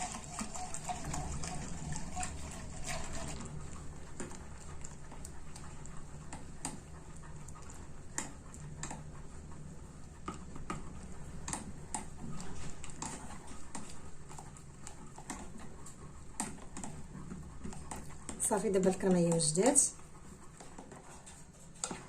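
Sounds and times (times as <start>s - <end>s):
utensil scraping a pot: 0.0s - 3.5s.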